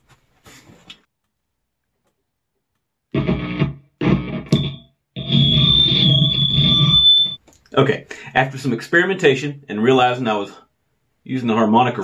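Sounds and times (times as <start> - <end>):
distorted kazoo notes: 3.2 - 7.4.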